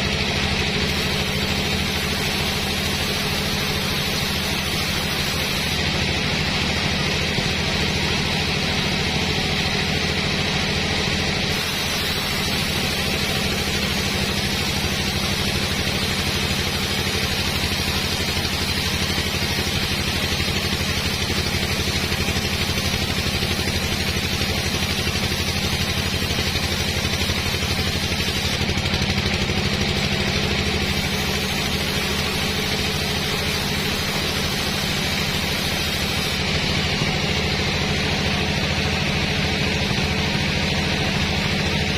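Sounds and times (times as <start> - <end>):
machinery engine hum: 0.0 - 41.9
steady hiss: 0.9 - 5.8, 11.5 - 28.6, 30.8 - 36.4.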